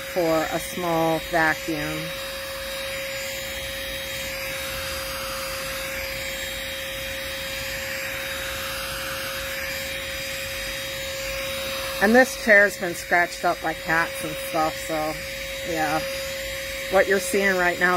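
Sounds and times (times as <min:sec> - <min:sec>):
handheld vacuum motor whine: 0:00.0 - 0:17.9.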